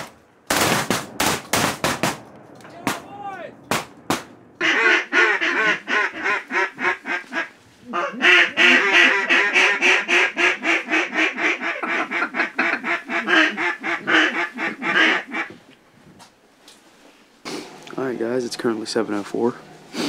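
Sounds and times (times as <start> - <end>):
gunshot: 0.0 - 5.8
duck quacks: 4.6 - 15.6.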